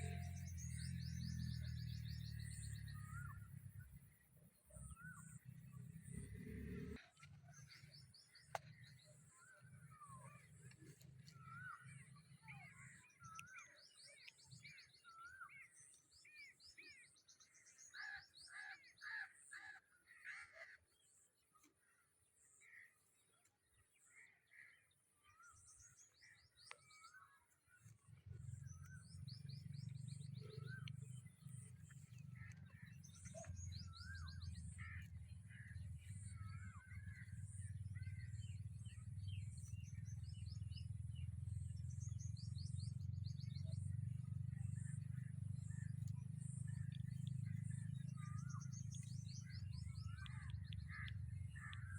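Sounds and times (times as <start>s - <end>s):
birds chirping and trilling: 0.0s - 3.9s, 24.0s - 51.9s.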